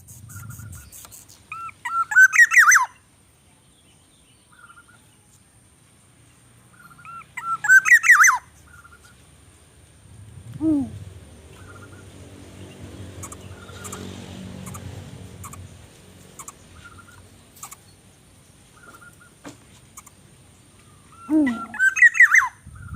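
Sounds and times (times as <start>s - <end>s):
birds chirping: 0.0s - 22.9s
low rumble: 9.5s - 16.3s.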